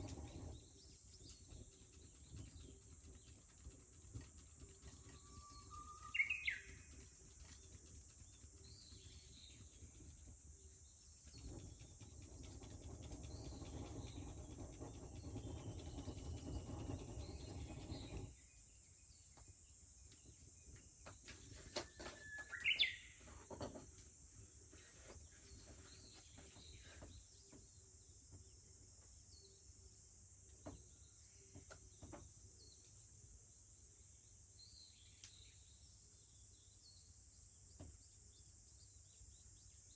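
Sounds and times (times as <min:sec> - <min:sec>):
cicadas droning: 0:00.0 - 0:39.9
bird singing whistled phrases: 0:05.3 - 0:06.8, 0:22.0 - 0:23.1.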